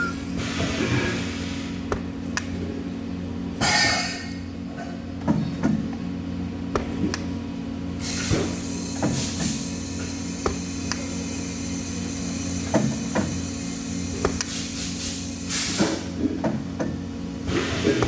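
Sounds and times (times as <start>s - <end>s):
machine hum: 0.0s - 18.0s
short hissing bursts: 8.0s - 16.0s.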